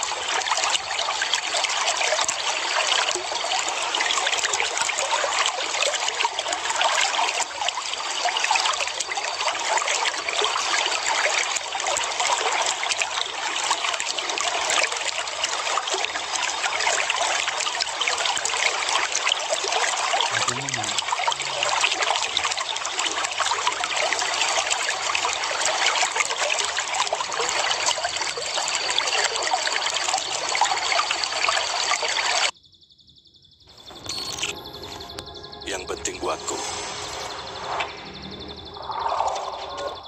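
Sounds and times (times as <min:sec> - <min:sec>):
water trickling and splashing: 0:00.0 - 0:32.5
faint high tone: 0:33.7 - 0:40.0.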